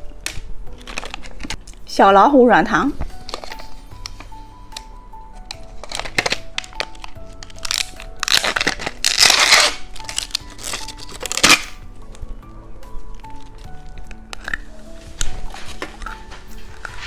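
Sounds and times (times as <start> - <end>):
background music: 0.0 - 17.0
plastic wrapper crinkling and tearing: 3.1 - 12.2.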